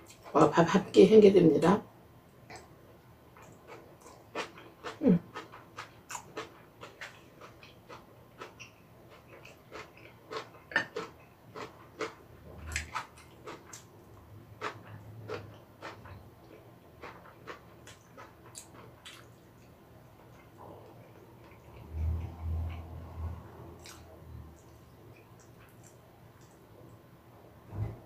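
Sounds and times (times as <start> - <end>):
wet chewing and mouth clicks: 3.4 - 22.9, 23.8 - 26.6.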